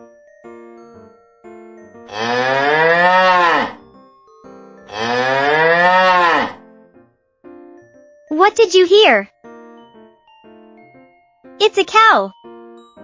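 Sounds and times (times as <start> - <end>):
tinkling children's music: 0.0 - 3.2, 3.8 - 5.9, 7.0 - 13.0
cow mooing: 2.1 - 3.8, 4.9 - 6.6.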